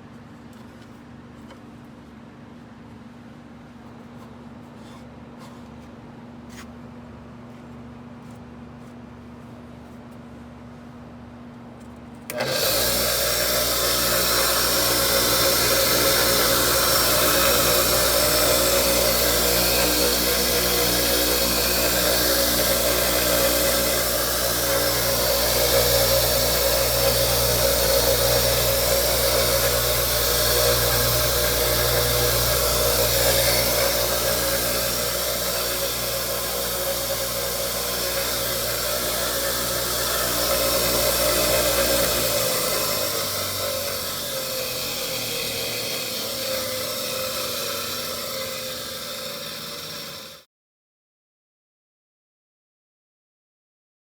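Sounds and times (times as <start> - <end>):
bench grinder running: 12.3 - 50.4.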